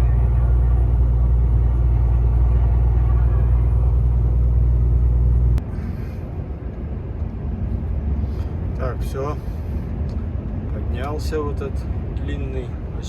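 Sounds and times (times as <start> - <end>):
truck diesel engine rumbling: 0.0 - 13.0.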